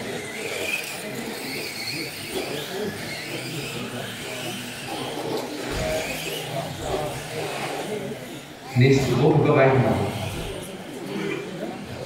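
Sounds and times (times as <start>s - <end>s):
model truck motors whining: 0.0s - 8.8s, 9.8s - 12.0s.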